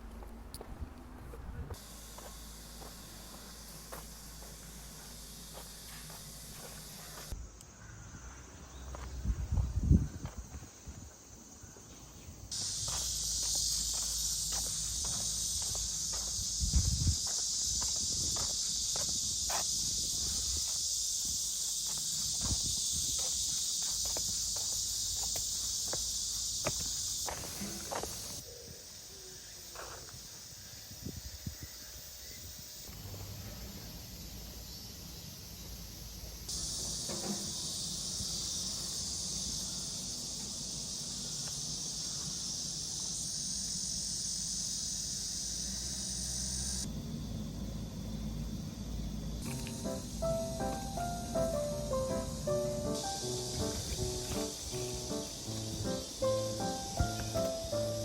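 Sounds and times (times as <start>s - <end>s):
footsteps: 0.0s - 7.4s, 11.8s - 20.8s, 21.6s - 28.4s, 53.5s - 58.0s
high insect chorus: 1.5s - 58.0s
thin steady whine: 1.7s - 7.9s.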